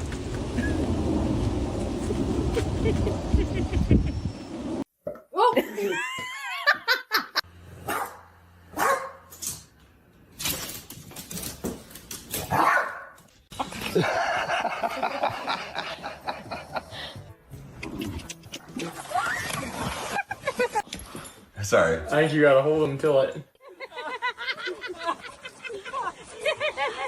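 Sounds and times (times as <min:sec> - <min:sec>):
dog barking: 0:07.8 - 0:09.3, 0:12.5 - 0:13.2.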